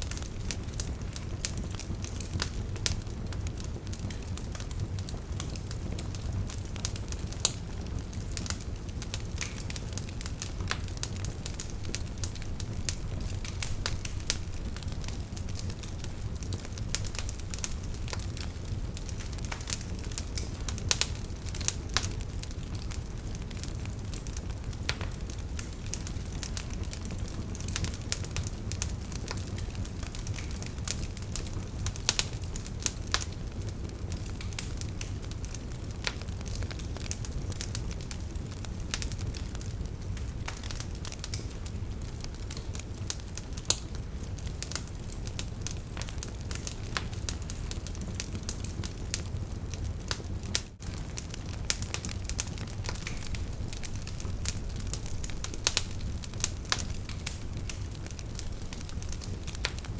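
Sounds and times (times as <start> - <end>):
firewood crackling and popping: 0.0 - 59.9
low rumble of flames: 0.0 - 59.9.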